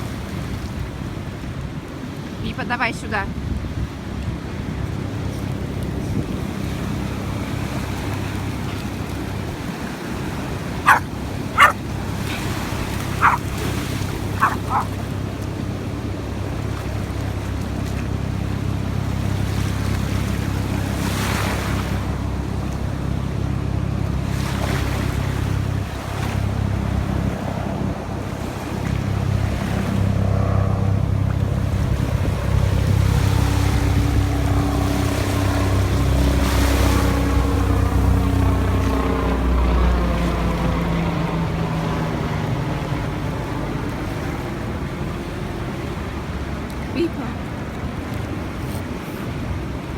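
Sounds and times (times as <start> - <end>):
wind: 0.0 - 49.9
sea surf: 3.9 - 30.9, 32.4 - 49.9
dog barking: 10.8 - 15.0.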